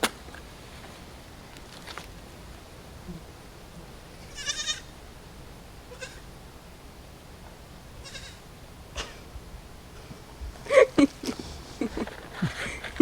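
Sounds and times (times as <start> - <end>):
animal bleating: 4.2 - 4.9, 5.9 - 6.3, 8.0 - 8.4.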